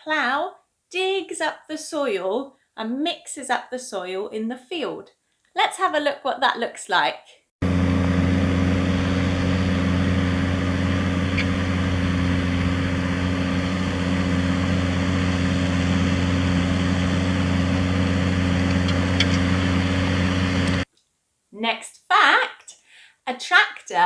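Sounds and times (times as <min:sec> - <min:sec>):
tractor engine running: 0:07.6 - 0:20.9.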